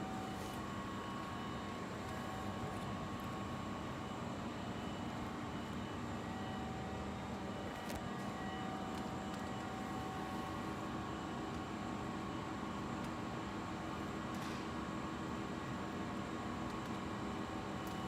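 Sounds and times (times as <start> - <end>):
faint constant tones: 0.0 - 14.3.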